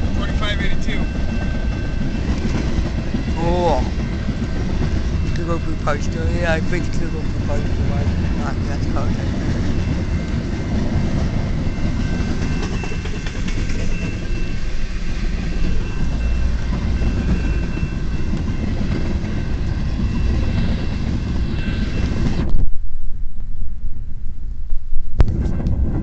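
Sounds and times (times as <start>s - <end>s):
train wheels rumbling on rail: 0.0s - 22.7s, 25.0s - 26.0s
muffled low rumble: 22.4s - 26.0s.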